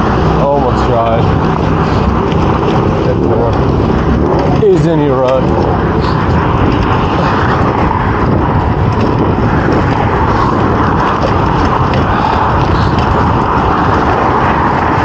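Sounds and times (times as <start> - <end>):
bicycle road noise: 0.0 - 15.0
wind buffeting microphone: 0.0 - 15.0.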